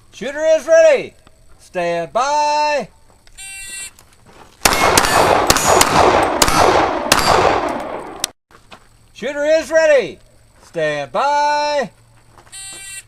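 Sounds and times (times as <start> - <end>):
pistol shots: 4.6 - 8.3.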